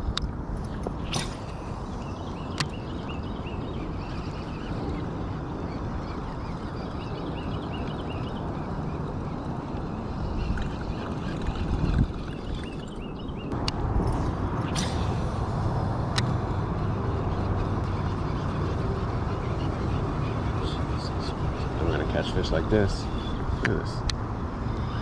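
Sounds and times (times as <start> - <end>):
wind and water rumble: 0.0 - 25.0
bird chirps: 1.0 - 9.5, 10.3 - 13.6.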